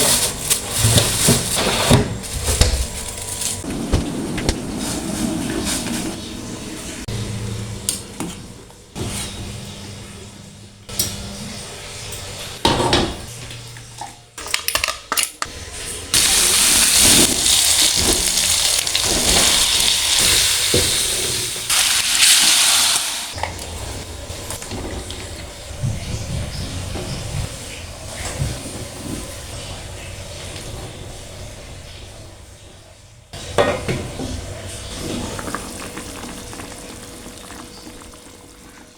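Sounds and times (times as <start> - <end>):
utensils clinking against pots: 13.9 - 25.6
food sizzling in hot oil: 16.2 - 23.4.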